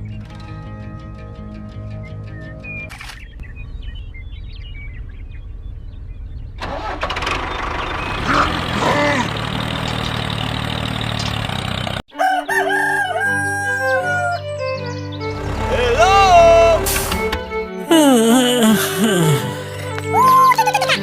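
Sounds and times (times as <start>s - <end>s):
music with held notes: 0.0s - 2.9s, 12.1s - 21.0s
low engine-like hum: 3.4s - 12.0s
rooster crowing: 12.1s - 14.5s.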